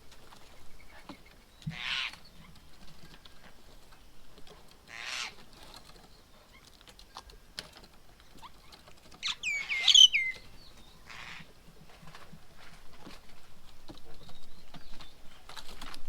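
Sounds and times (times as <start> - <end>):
birds chirping: 8.2 - 11.5.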